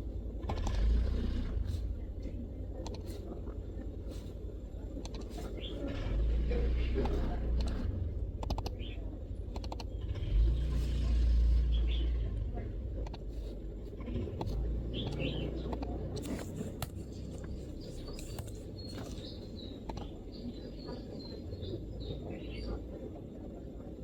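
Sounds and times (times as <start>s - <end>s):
faint bird chirps: 14.8s - 23.0s.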